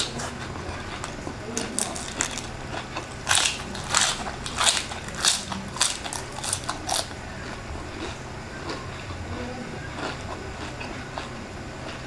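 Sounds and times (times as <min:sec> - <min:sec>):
crunchy chewing: 0:00.0 - 0:12.0.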